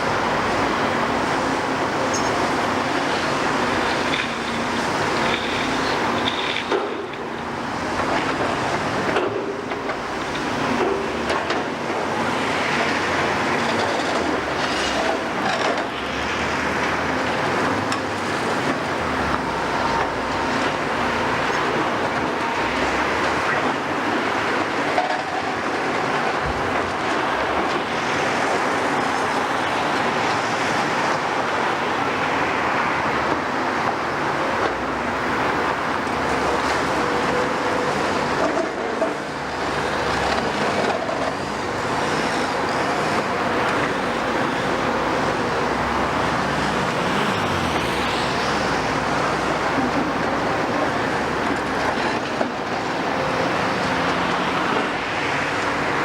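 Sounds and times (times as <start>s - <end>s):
heavy construction machinery running: 0.0s - 56.0s.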